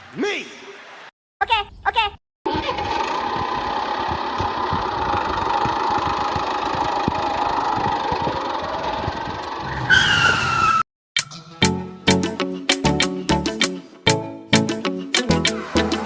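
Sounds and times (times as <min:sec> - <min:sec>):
motor running with clatter: 0:02.5 - 0:09.6.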